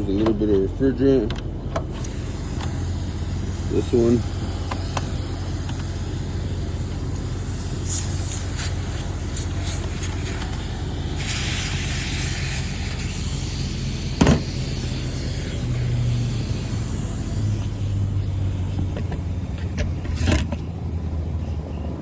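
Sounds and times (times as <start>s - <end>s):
steady low hum: 0.0s - 22.0s
refrigerant hissing: 1.9s - 19.4s
thump: 14.2s - 14.5s.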